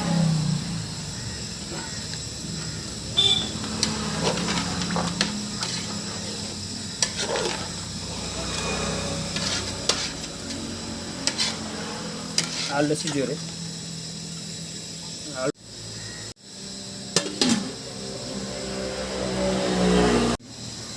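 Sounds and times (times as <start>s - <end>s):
curry bubbling in a pot: 1.2s - 11.6s.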